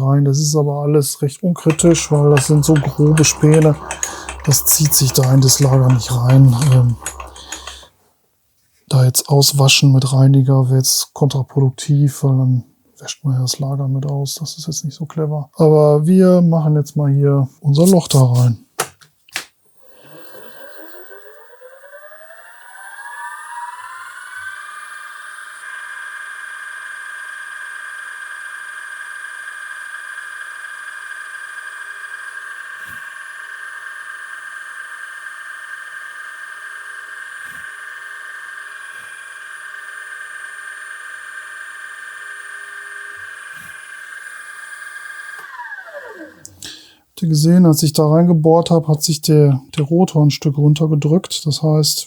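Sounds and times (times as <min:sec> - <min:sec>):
electric drill whining: 0:01.7 - 0:07.9, 0:20.0 - 0:33.1, 0:36.8 - 0:46.9.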